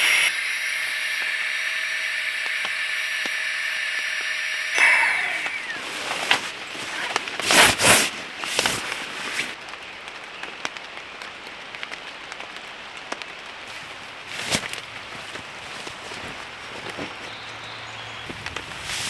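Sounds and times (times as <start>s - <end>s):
light rain on tent fabric: 4.7s - 19.0s
loud fabric rustles: 5.8s - 9.6s, 13.7s - 19.0s.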